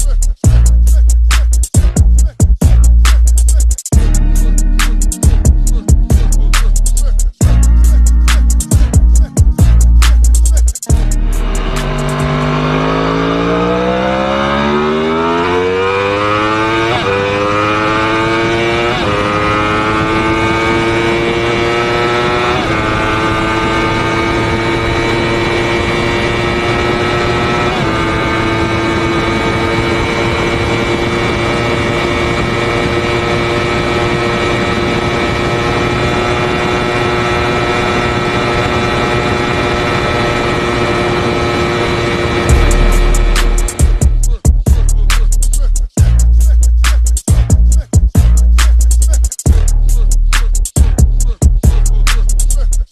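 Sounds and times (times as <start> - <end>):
sportbike engine accelerating: 4.0 - 44.3.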